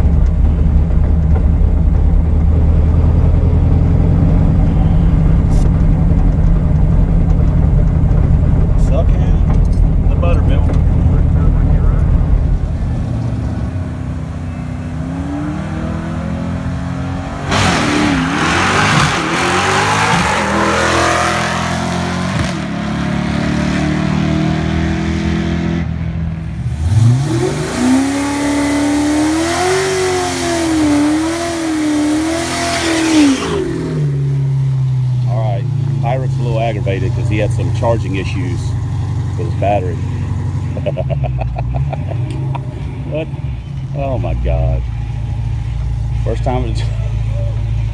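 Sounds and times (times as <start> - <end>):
engine idling: 0.0 - 17.4, 33.8 - 47.9
racing engine revving: 2.4 - 47.9
engine holding high revs: 10.4 - 47.9.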